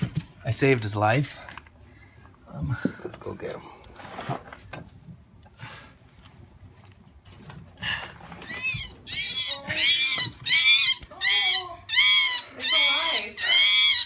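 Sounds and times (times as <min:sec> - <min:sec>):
bird screeching distress calls: 0:08.4 - 0:14.0.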